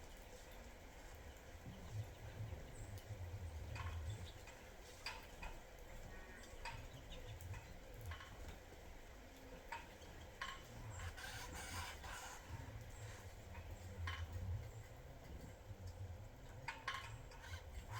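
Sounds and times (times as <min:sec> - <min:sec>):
small birds chirping: 0:00.0 - 0:08.4, 0:09.3 - 0:15.8.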